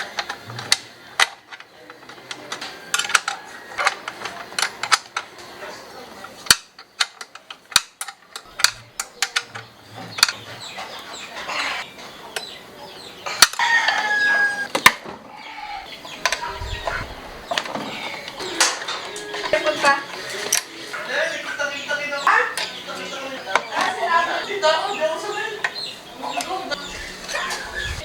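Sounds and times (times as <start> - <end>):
rooster crowing: 2.6 - 3.8, 13.3 - 14.7
tool clicks and knocks: 6.4 - 10.4.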